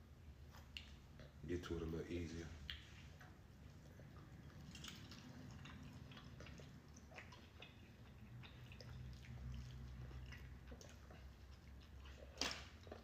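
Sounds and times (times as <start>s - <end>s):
food being chewed: 0.2s - 13.0s.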